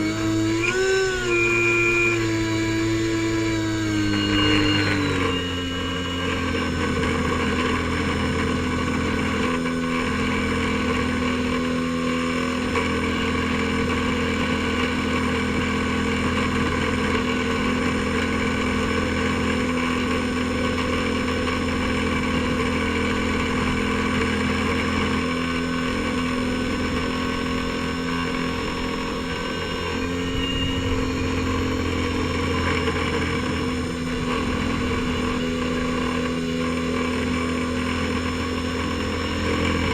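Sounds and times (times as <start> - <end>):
airboat engine and propeller: 0.0 - 39.9.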